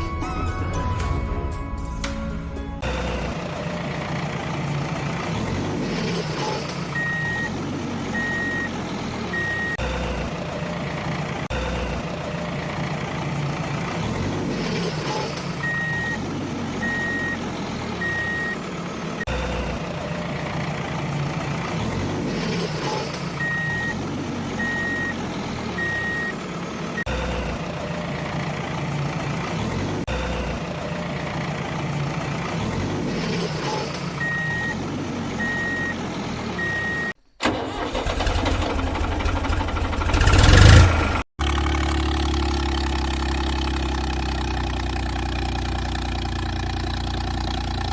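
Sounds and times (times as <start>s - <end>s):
truck engine running: 0.0s - 47.9s
reversing alarm beeping: 6.4s - 10.8s, 15.0s - 16.2s, 16.8s - 17.4s, 18.0s - 18.6s, 22.6s - 24.0s, 24.6s - 25.2s, 25.8s - 26.4s, 33.3s - 34.8s, 35.4s - 36.0s, 36.6s - 37.2s.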